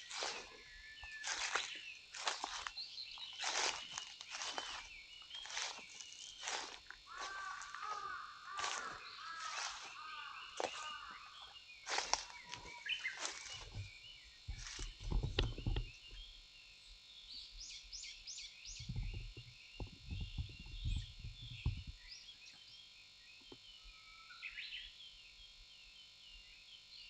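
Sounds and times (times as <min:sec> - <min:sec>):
small birds chirping: 0:00.0 - 0:27.0
low scuffs and thumps: 0:11.9 - 0:15.9.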